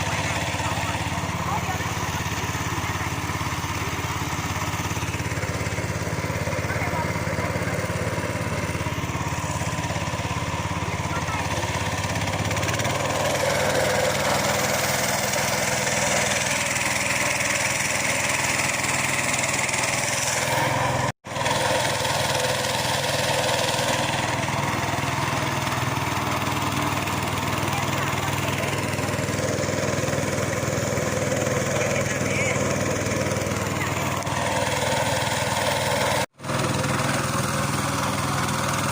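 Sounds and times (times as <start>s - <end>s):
small boat engine running: 0.0s - 38.9s.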